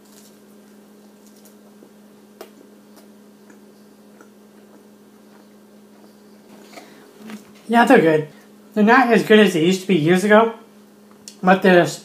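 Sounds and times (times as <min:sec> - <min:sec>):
faint chewing: 0:00.0 - 0:07.7
steady low hum: 0:00.0 - 0:12.0.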